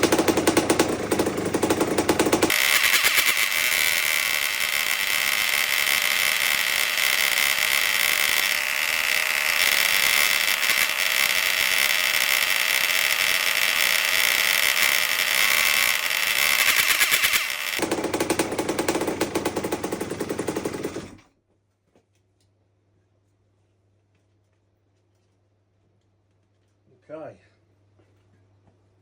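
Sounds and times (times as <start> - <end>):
two-stroke engine revving: 0.0 - 21.2.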